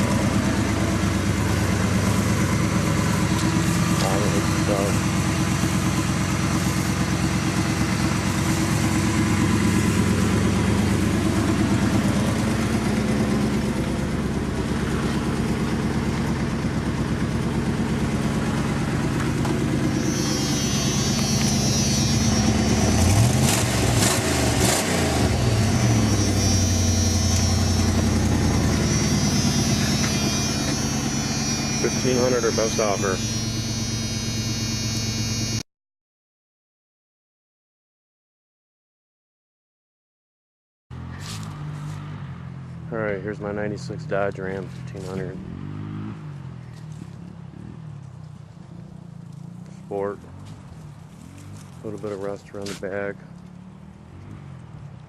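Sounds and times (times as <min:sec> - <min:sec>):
high-pitched whine: 0:00.0 - 0:35.6
pickup engine idling and revving: 0:00.0 - 0:35.6, 0:41.0 - 0:55.0.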